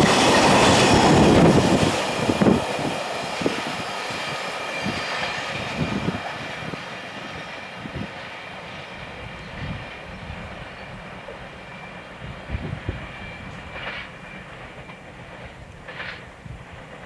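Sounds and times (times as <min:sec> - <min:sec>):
train wheels rumbling on rail: 0:00.0 - 0:17.0
wheels clanking over rail joints: 0:12.5 - 0:17.0.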